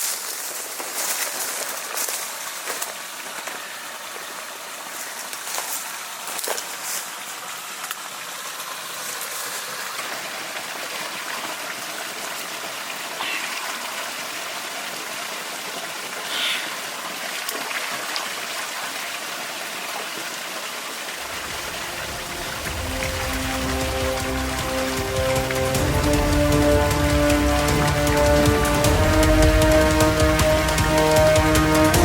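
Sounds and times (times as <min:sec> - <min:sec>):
running water hiss: 0:00.0 - 0:32.0
music: 0:21.3 - 0:32.0.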